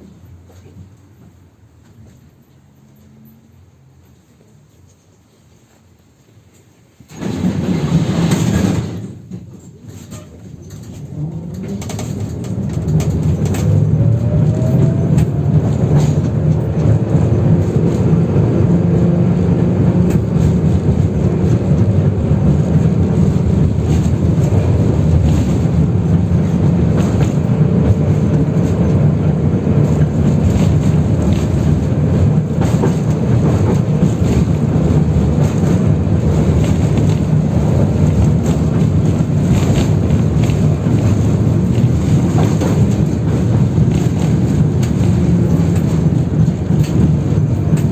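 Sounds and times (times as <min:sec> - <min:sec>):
tram running rumble: 0:00.0 - 0:47.9
wheels clicking over rail joints: 0:06.5 - 0:47.9
tram motor whine: 0:10.4 - 0:47.9.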